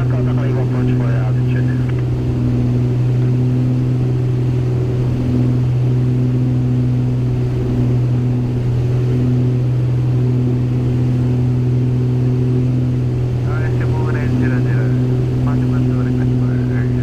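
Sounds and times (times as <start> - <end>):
aircraft engines droning in cabin: 0.0 - 17.0.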